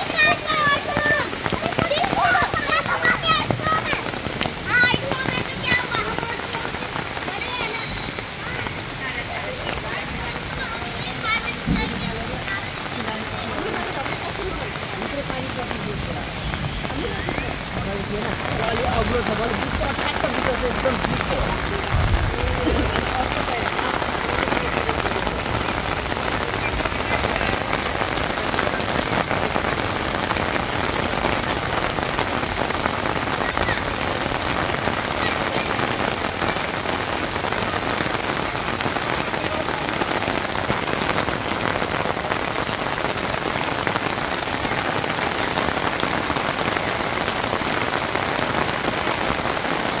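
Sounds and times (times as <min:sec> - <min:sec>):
steady rain falling: 0:00.0 - 0:50.0.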